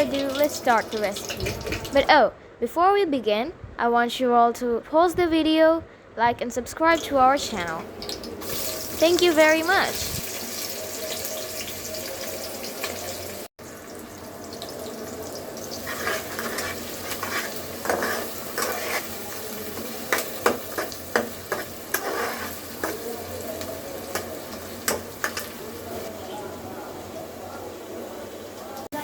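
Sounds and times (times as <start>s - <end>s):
food sizzling in oil: 0.0s - 2.0s, 7.6s - 26.3s
spoon scraping a pan: 15.6s - 25.6s.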